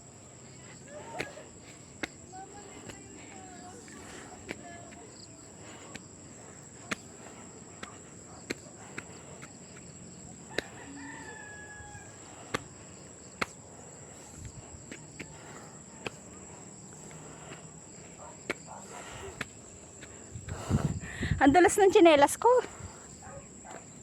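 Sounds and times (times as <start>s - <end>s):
footsteps in slippers on trail: 0.0s - 21.0s
distant rooster crowing: 10.5s - 12.6s.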